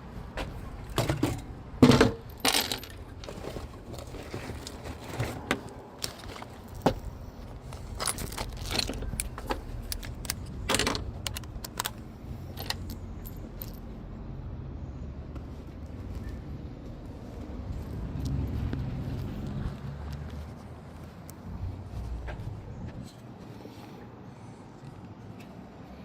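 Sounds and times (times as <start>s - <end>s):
small metal pieces clinking: 2.3s - 3.0s, 8.0s - 13.8s.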